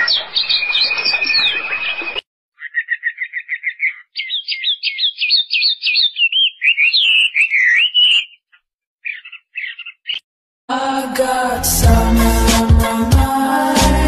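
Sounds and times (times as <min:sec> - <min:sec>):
songbird singing: 0:00.0 - 0:10.3.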